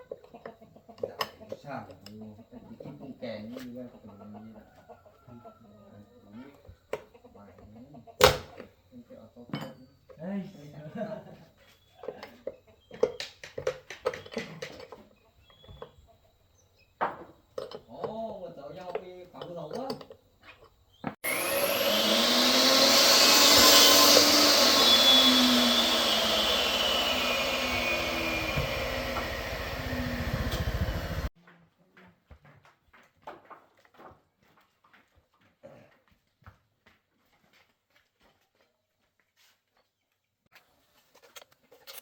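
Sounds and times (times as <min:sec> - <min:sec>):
loud machine hissing and pulsing: 0:21.2 - 0:31.3.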